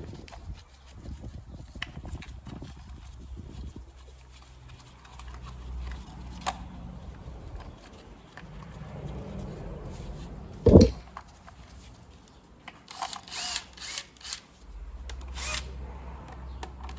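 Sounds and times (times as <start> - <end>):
low hum: 10.6 - 11.0
tools knocking and clicking: 10.7 - 11.0.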